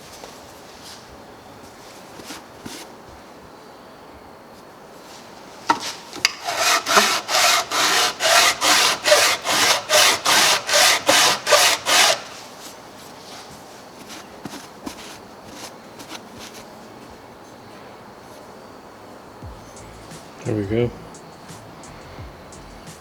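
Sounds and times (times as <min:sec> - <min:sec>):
metal rasping on abrasive: 0:05.7 - 0:12.4, 0:14.0 - 0:16.7.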